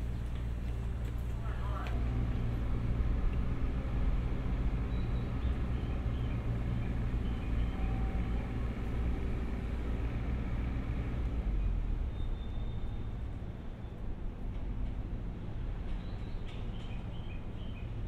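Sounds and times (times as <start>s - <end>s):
train approaching with low rumble: 0.0s - 18.0s.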